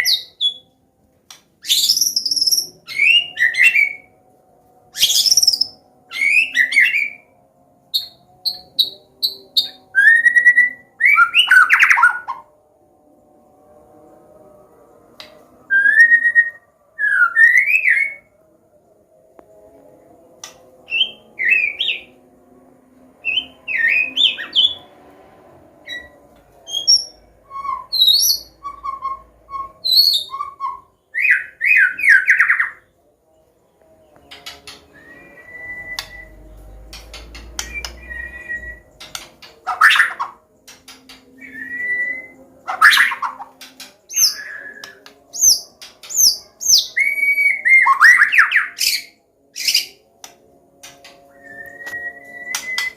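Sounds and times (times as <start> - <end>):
bird singing whistles and chirps: 0.0 - 0.7, 1.6 - 4.1, 5.0 - 7.3, 8.0 - 12.4, 15.7 - 18.3, 20.4 - 22.2, 23.2 - 24.9, 25.9 - 32.8, 34.0 - 50.0, 51.3 - 52.9.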